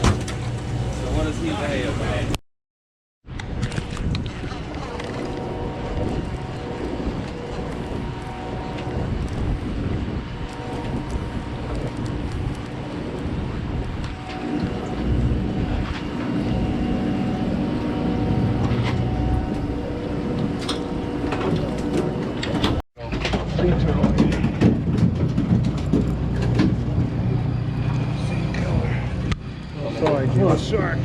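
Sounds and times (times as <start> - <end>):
wind buffeting microphone: 3.3 - 22.8
machinery hum: 3.6 - 31.0.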